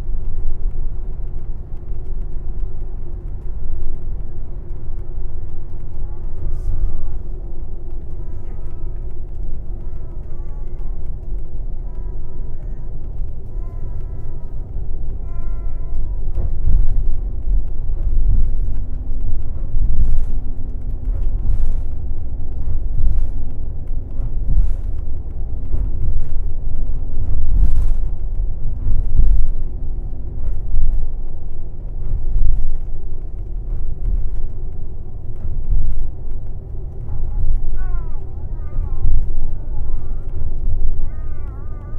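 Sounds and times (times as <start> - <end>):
bus engine and road rumble: 0.0 - 41.9.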